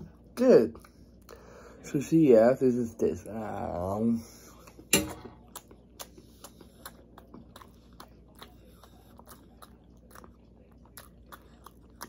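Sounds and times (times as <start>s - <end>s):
person chewing food: 4.3s - 12.0s.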